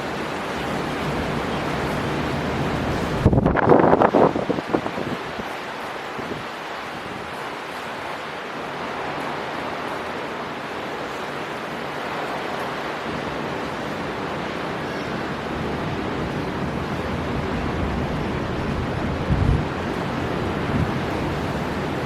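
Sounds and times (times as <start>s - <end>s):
storm wind: 0.0s - 22.0s.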